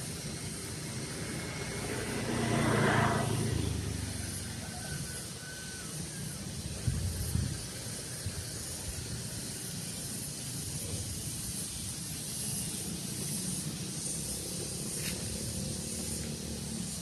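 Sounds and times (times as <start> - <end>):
high hiss: 0.0 - 17.0
wind rumbling on microphone: 6.4 - 9.7.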